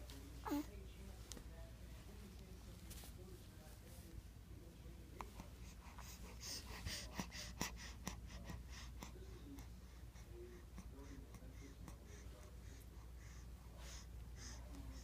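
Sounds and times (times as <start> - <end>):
close breathing puffs: 5.4 - 15.0.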